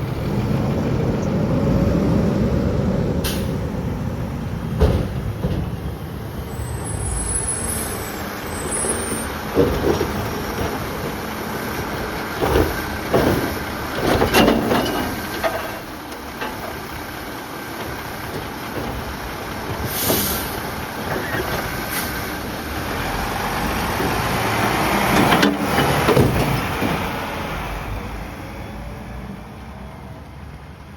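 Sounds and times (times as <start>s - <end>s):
garbage truck diesel engine: 0.0s - 30.9s
air brake hiss: 3.2s - 3.6s, 19.9s - 20.6s.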